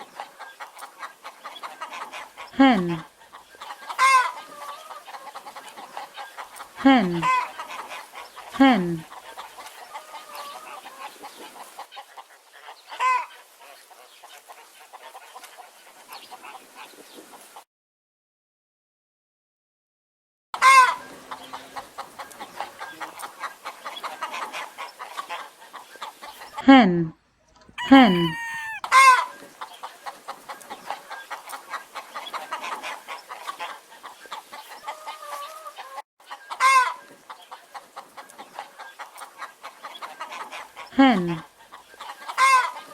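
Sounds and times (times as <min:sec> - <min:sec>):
hens clucking: 0:27.6 - 0:28.8
hen squawk: 0:27.6 - 0:28.9.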